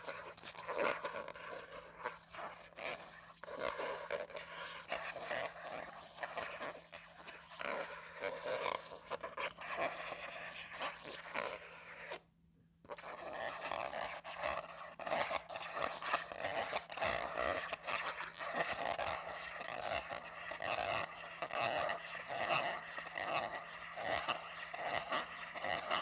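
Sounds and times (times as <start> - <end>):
comb scratching across paper: 0.0 - 12.2, 12.9 - 26.0.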